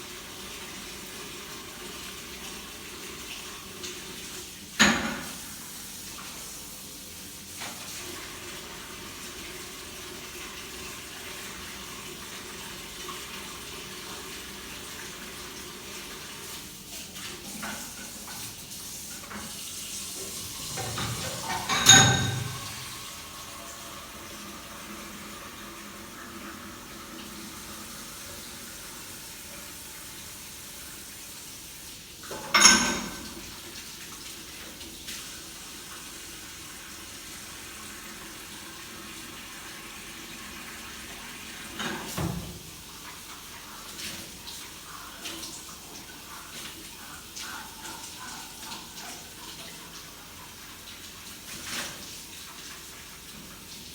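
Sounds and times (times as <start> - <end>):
running water hiss: 0.0 - 53.9.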